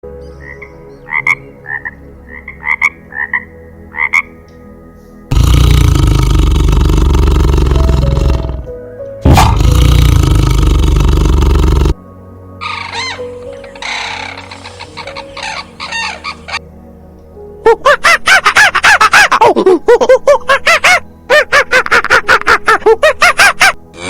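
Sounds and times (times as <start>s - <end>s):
animal croaking calls: 5.3s - 12.0s, 12.6s - 16.6s
animal rough roars: 5.3s - 12.0s.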